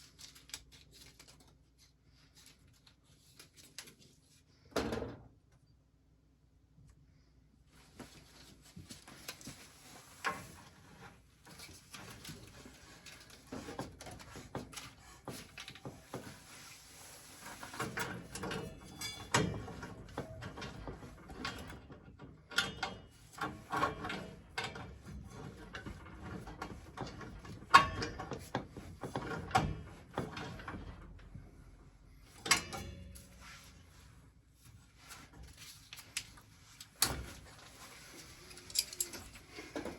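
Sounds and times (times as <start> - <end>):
metallic clicks and knocks of tools: 38.5 - 39.4.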